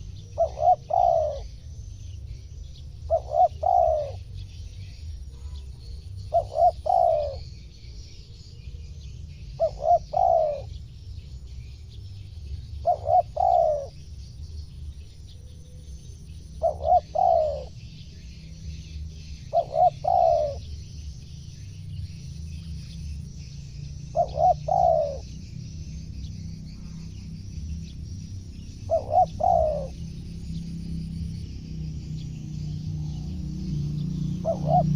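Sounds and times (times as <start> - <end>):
dove cooing: 0.0 - 1.8, 3.0 - 4.4, 5.3 - 7.6, 8.6 - 10.8, 12.7 - 14.1, 15.3 - 21.1, 24.0 - 25.6, 26.7 - 34.9.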